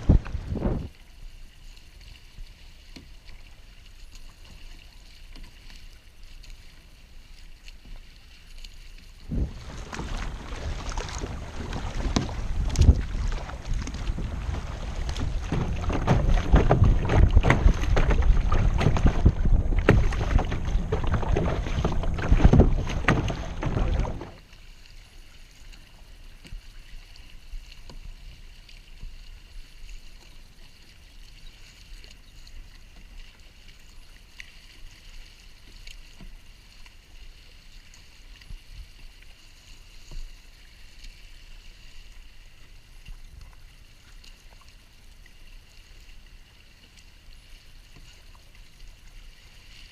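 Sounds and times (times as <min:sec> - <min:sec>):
wind buffeting microphone: 0:00.0 - 0:00.9, 0:09.3 - 0:24.4
small water splashes: 0:00.0 - 0:49.9
water lapping around kayak: 0:00.0 - 0:49.9.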